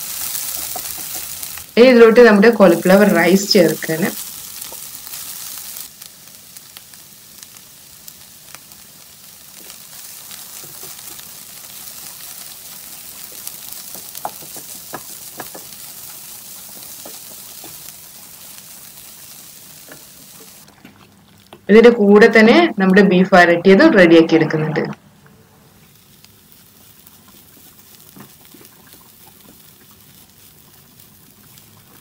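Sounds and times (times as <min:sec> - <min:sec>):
food sizzling in a frying pan: 0:00.0 - 0:20.7, 0:25.8 - 0:32.0
spatula scraping and tapping pan: 0:00.4 - 0:01.4, 0:10.4 - 0:11.4, 0:13.3 - 0:17.9.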